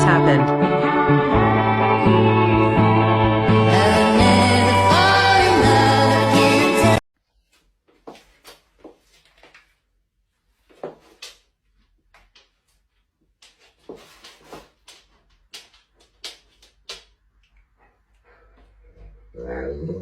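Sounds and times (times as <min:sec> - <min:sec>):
music: 0:00.0 - 0:07.0.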